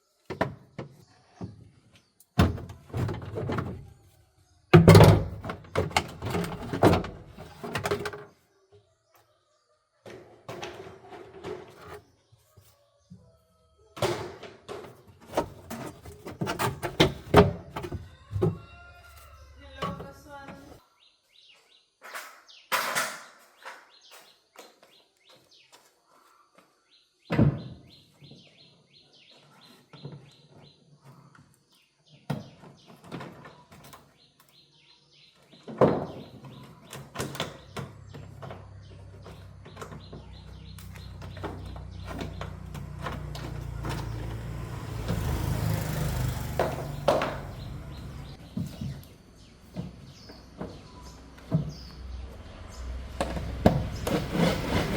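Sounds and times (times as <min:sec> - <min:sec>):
tools and parts clattering: 0:04.8 - 0:08.4, 0:14.0 - 0:18.6.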